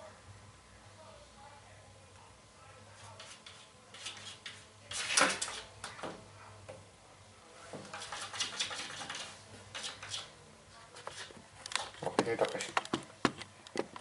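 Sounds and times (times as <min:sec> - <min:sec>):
cat claws scratching glass: 0:03.2 - 0:05.7, 0:07.9 - 0:10.4.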